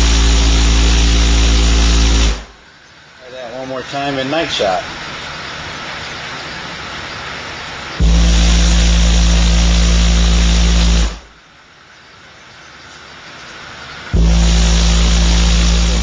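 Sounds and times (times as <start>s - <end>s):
loud subwoofer test tone: 0.0s - 4.1s, 7.9s - 11.5s, 13.8s - 16.0s
steady noise: 0.0s - 16.0s.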